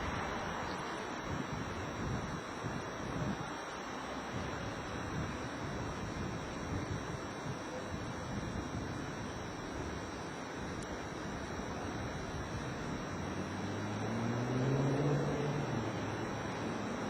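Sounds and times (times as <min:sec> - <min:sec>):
steady rushing noise: 0:00.0 - 0:17.0
engine hum rising in pitch: 0:12.9 - 0:17.0.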